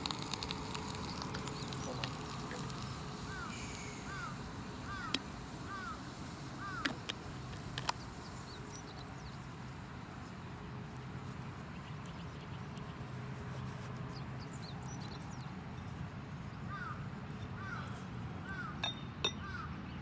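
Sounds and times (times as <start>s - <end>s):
campfire crackling: 0.0s - 19.2s
bird calling: 0.9s - 9.6s, 14.4s - 19.8s.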